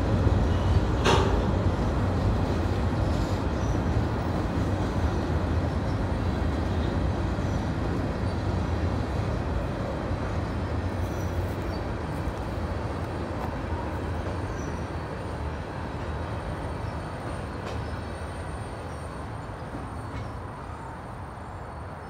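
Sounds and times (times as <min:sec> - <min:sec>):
train wheels rumbling on bridge: 0:00.0 - 0:22.0.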